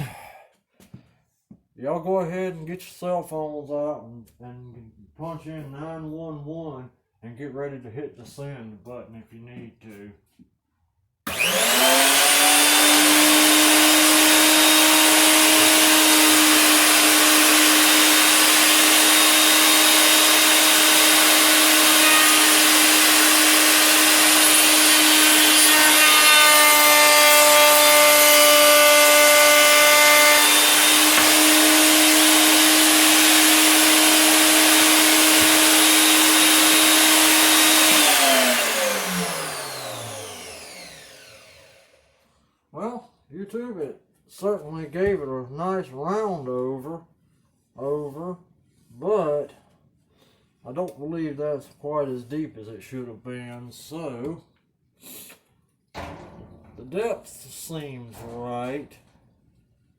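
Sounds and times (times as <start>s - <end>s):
router bit cutting wood: 11.3s - 42.2s
router whining: 11.3s - 42.2s.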